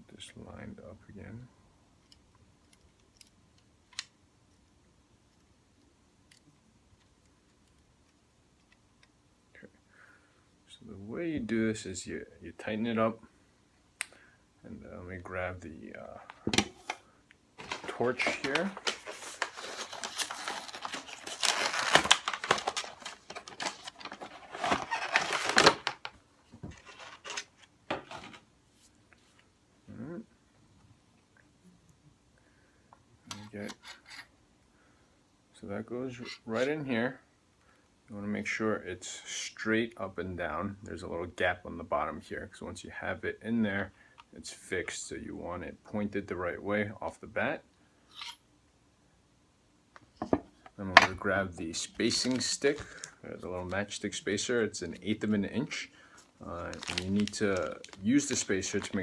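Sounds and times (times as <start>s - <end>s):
packaging crinkling and rustling: 17.6s - 28.4s, 51.7s - 59.0s.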